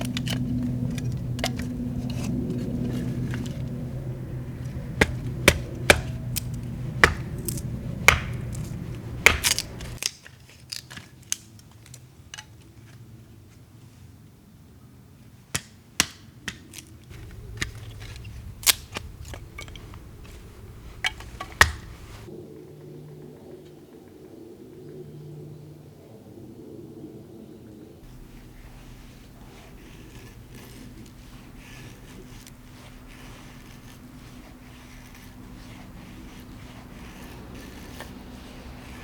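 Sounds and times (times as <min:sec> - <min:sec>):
steady low hum: 0:00.0 - 0:10.0, 0:17.1 - 0:39.0
sharp clicks and knocks: 0:16.5 - 0:22.3.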